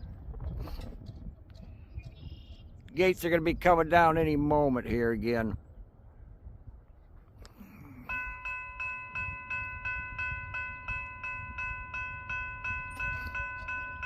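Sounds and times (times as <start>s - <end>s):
crossing warning bell ringing: 8.0s - 14.0s.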